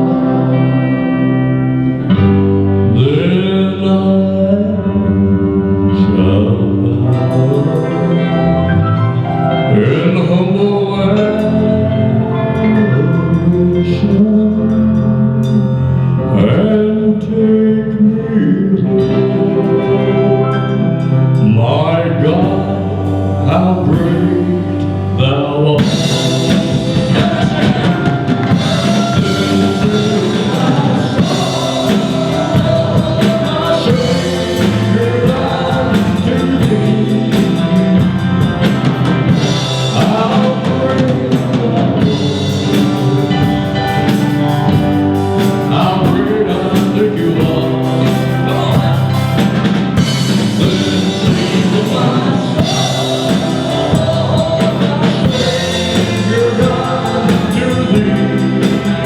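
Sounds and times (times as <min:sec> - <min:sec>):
live band playing slow country hymn: 0:00.0 - 0:59.0
person singing: 0:00.0 - 0:59.0
drum kit: 0:18.9 - 0:59.0.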